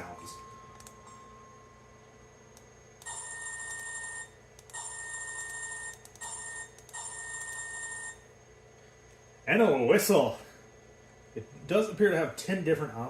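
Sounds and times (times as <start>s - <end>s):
electric bell ringing: 0.0s - 8.2s.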